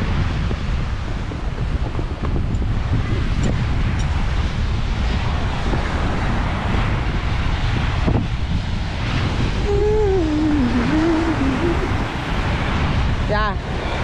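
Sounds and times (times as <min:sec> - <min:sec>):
ocean surf: 0:00.0 - 0:14.0
wind buffeting microphone: 0:00.0 - 0:14.0
person's voice: 0:09.6 - 0:12.2.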